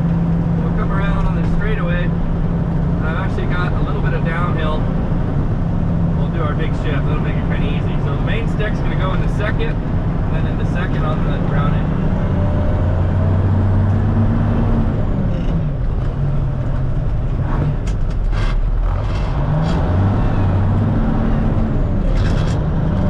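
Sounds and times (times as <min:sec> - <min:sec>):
truck diesel engine: 0:00.0 - 0:23.0
gears clunking and grinding: 0:15.3 - 0:20.5, 0:21.5 - 0:23.0.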